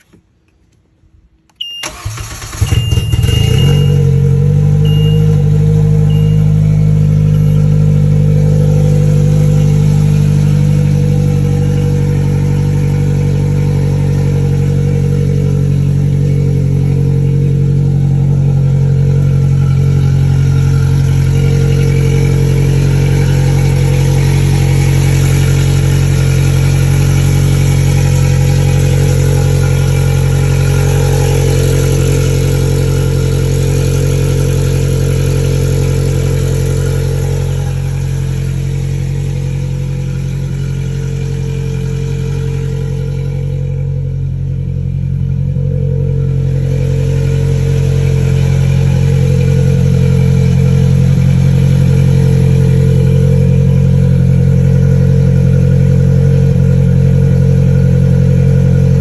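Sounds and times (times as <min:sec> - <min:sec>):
engine starter cranking: 0:01.6 - 0:04.0
loud engine idling: 0:01.8 - 0:59.0.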